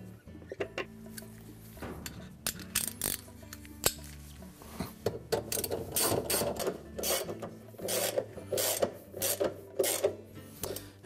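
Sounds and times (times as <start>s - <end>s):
socket ratchet clicking: 2.5s - 4.1s, 5.4s - 10.8s.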